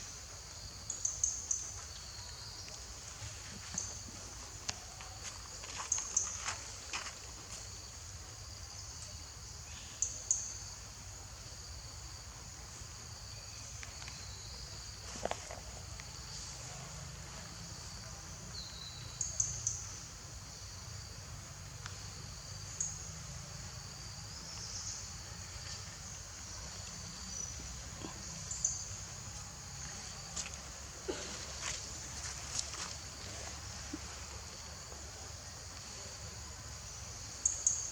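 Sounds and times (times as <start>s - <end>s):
insects droning: 0.0s - 37.9s.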